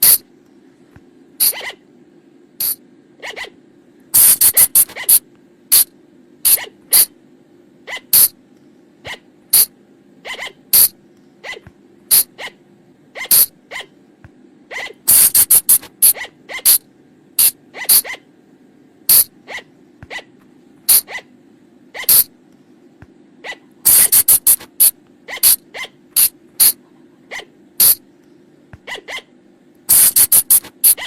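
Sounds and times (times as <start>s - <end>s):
faint low hum: 0.0s - 31.0s
animal shrill squeaks: 1.4s - 1.8s, 2.6s - 3.6s, 4.2s - 5.2s, 6.5s - 7.1s, 7.9s - 8.4s, 9.1s - 12.6s, 13.2s - 13.9s, 14.7s - 16.8s, 17.4s - 18.3s, 19.1s - 20.3s, 20.9s - 21.3s, 22.0s - 22.3s, 23.4s - 24.7s, 25.3s - 28.0s, 28.8s - 29.3s, 29.9s - 31.0s.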